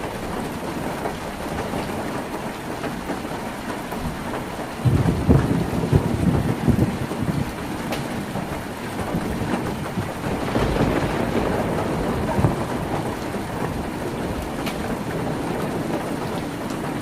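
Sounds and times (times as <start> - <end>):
rain on a tin roof: 0.0 - 17.0.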